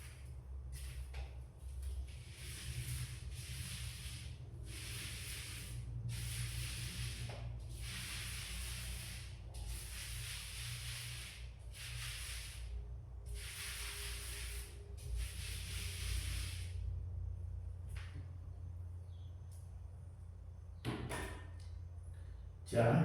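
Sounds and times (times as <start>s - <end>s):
paint roller swishing on wall: 0.0s - 16.9s
steady low hum: 0.0s - 23.0s.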